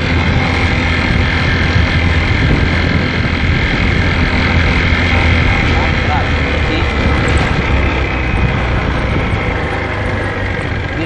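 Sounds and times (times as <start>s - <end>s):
small motorcycle engine running: 0.0s - 11.0s
wind rushing over microphone: 0.0s - 11.0s.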